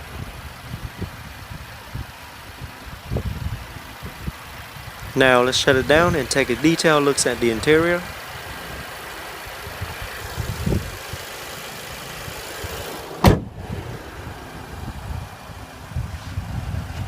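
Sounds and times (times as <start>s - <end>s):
car engine idling: 0.0s - 16.8s
car door shutting: 13.0s - 13.8s.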